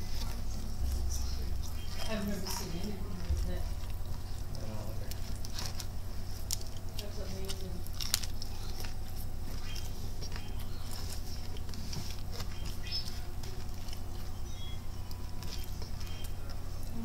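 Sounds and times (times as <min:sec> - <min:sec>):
crunchy chewing: 0:00.0 - 0:17.0
steady low hum: 0:00.0 - 0:17.0.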